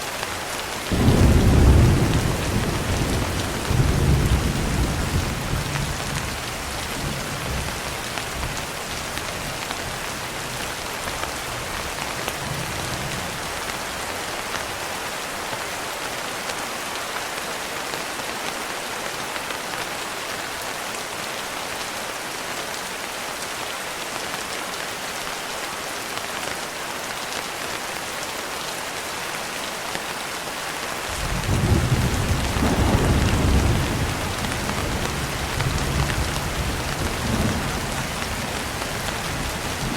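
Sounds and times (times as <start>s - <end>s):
heavy rain hissing: 30.4s - 39.9s
thunder rumbling: 31.2s - 39.9s.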